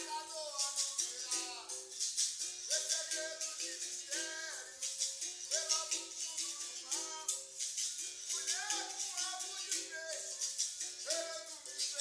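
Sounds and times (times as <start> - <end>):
voices singing: 0.0 - 1.9, 2.7 - 12.0
shaken rattle beat: 0.0 - 12.0.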